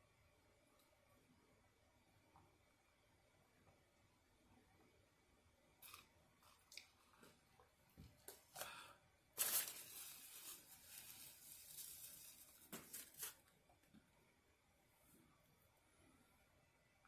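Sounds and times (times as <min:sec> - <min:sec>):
food packaging crinkling: 0:09.4 - 0:13.5.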